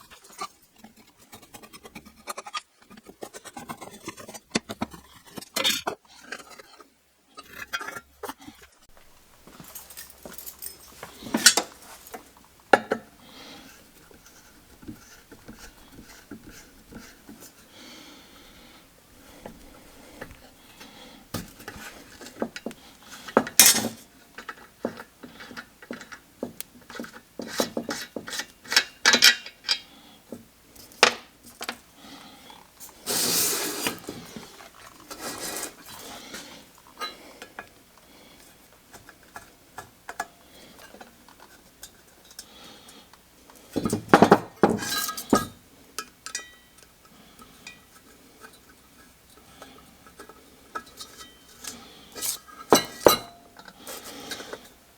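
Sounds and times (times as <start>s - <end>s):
metal parts clinking and clanking: 9.2s - 13.0s, 23.3s - 24.7s, 28.0s - 29.8s, 43.8s - 46.8s.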